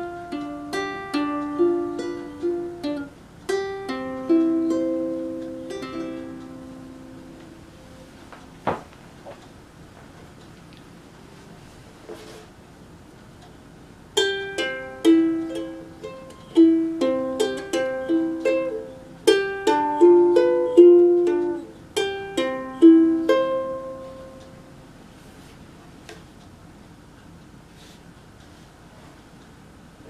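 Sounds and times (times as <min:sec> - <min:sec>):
ukulele plucked notes and chords: 0:00.0 - 0:08.1, 0:14.2 - 0:24.7.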